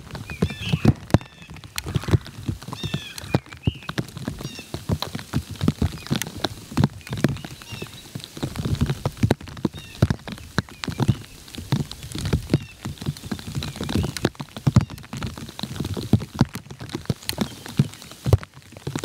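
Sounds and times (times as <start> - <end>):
patter of taps and knocks: 0.0 - 19.0.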